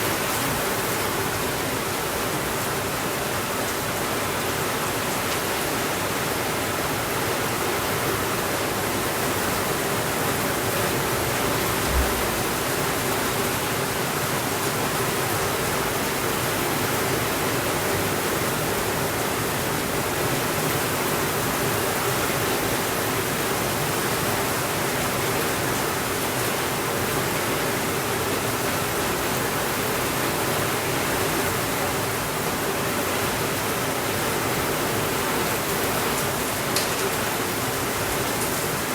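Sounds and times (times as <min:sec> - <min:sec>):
steady rainfall: 0:00.0 - 0:38.9
low thump: 0:11.7 - 0:12.7.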